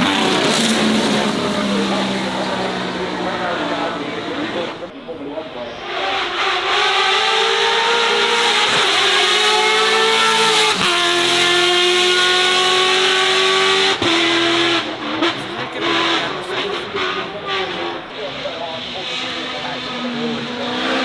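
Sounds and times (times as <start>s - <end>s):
race car engine accelerating: 0.0s - 21.0s.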